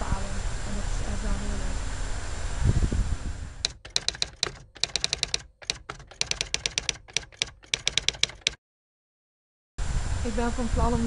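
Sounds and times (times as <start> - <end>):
rapid keyboard key clicks: 3.6 - 8.6.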